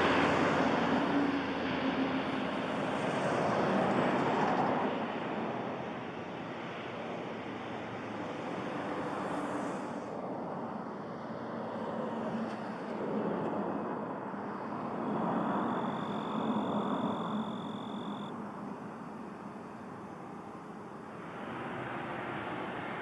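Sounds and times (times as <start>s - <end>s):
distant engine noise: 12.6s - 23.0s
thin high whine: 14.5s - 23.0s.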